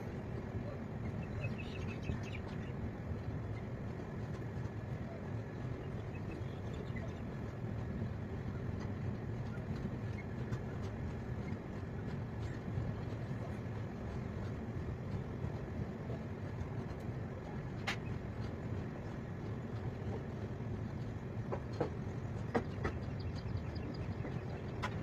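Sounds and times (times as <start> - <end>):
train wheels rumbling on track: 0.0 - 25.0.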